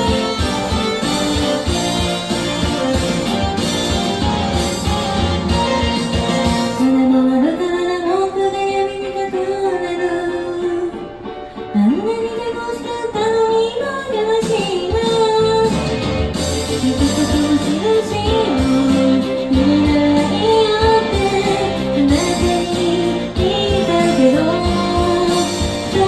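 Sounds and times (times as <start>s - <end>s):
guitar backing: 0.0s - 26.0s
woman singing pop song: 6.4s - 26.0s.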